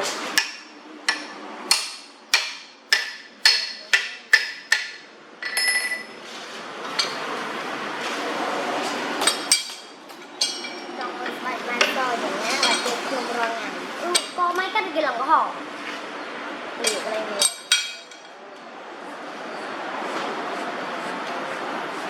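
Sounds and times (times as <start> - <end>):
hammer striking metal: 0.4 - 6.2, 9.2 - 10.9, 16.8 - 18.3.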